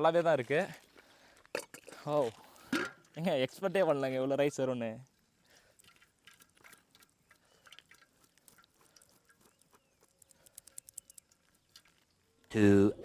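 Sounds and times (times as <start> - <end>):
faint ticks: 5.0 - 12.5
faint small clicks and taps: 5.8 - 12.5.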